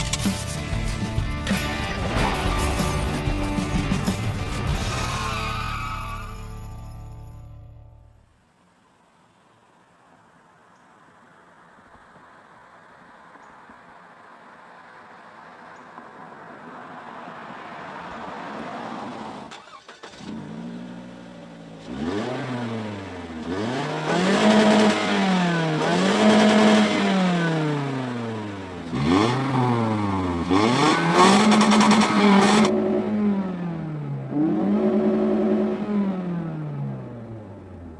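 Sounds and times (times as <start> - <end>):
car engine revving: 16.3 - 37.9.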